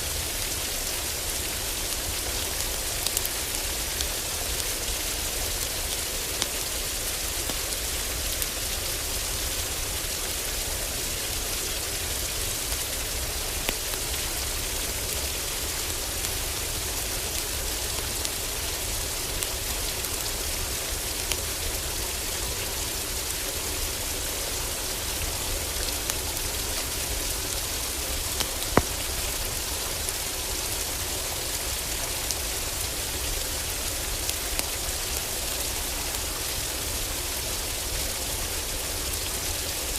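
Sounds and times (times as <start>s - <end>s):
heavy rain on a roof: 0.0s - 39.9s
wood fire crackling and popping: 27.5s - 30.3s.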